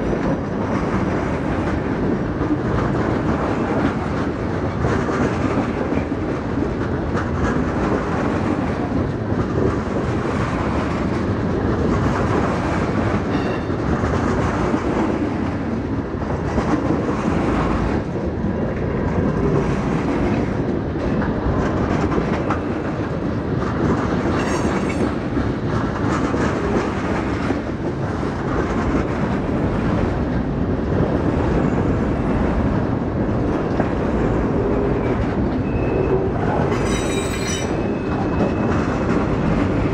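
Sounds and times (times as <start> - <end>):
train wheels clicking over rail joints: 0.0 - 39.9.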